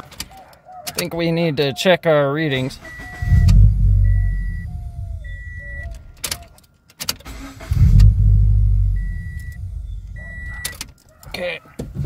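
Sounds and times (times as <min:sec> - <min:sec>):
car engine surging: 0:02.8 - 0:06.2, 0:07.3 - 0:10.6.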